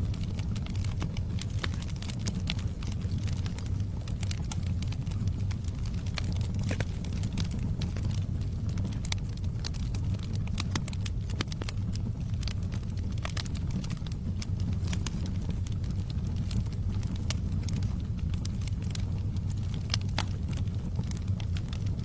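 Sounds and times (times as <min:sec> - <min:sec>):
fire flames rumbling: 0:00.0 - 0:22.0
wood crackling and popping: 0:00.0 - 0:22.0.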